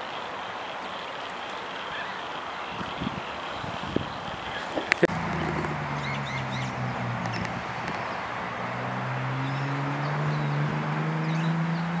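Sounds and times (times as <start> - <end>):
low drone rising in pitch: 4.9 - 12.0.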